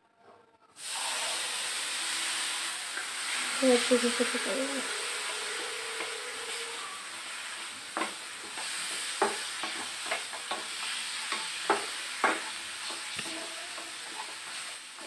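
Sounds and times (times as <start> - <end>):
coconut sizzling in hot ghee: 0.7 - 15.0
spatula scraping and knocking pan: 4.2 - 15.0.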